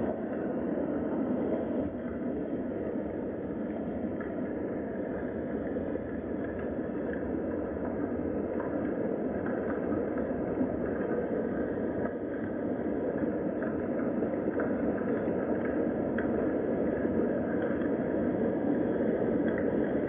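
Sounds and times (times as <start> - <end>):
steady rain: 0.1 - 20.0
raindrop ticks: 4.2 - 20.0.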